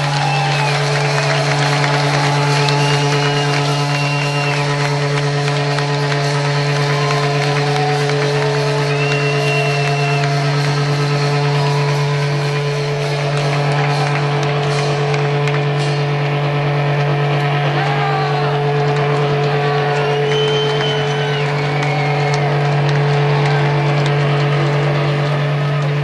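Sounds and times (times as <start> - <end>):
high squealing feedback whistles: 0.0 - 15.0, 19.7 - 23.7
guitar amplifier drone: 0.0 - 26.0.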